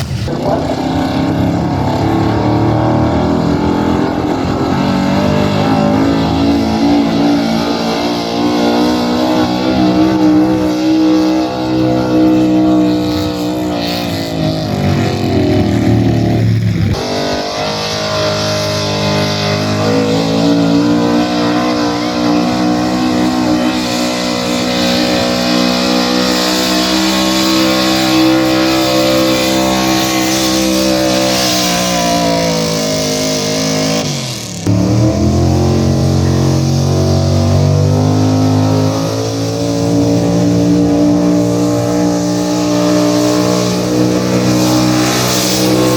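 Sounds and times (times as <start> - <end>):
truck engine at high revs: 0.0 - 45.9.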